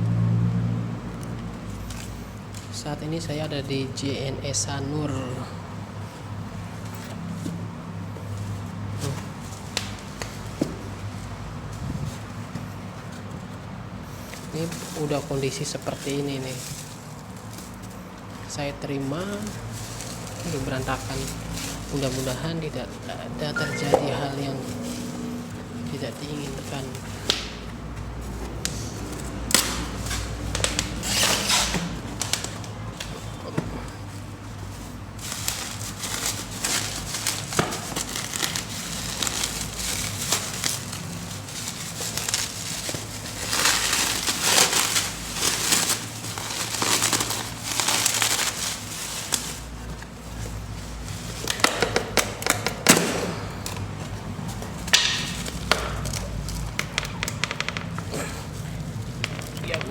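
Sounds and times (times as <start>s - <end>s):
plastic wrapping rustling: 5.1s - 52.9s, 53.6s - 59.9s
tape tearing: 29.1s - 33.1s, 35.3s - 50.1s.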